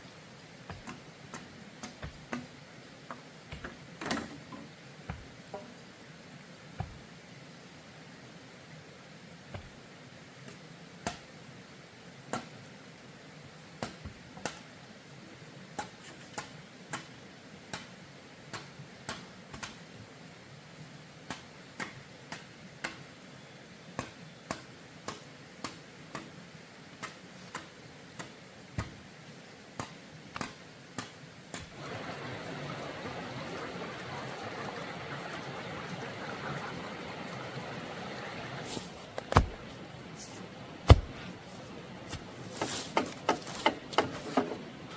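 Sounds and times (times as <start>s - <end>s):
sharp knocks: 40.9s - 41.2s.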